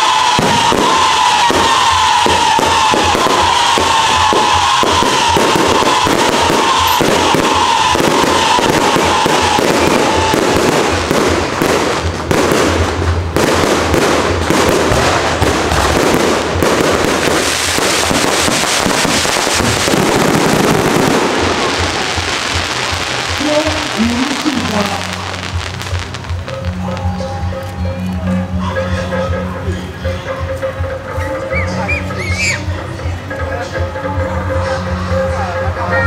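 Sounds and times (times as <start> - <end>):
fireworks crackling: 0.0 - 29.7.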